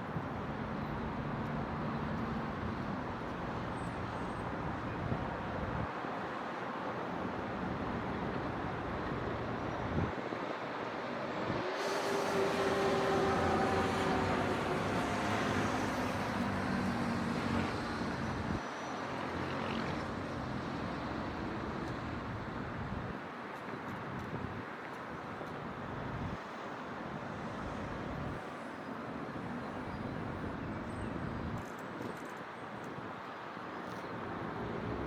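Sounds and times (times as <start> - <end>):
distant city traffic: 10.2 - 23.0
vehicle passing: 11.8 - 18.0.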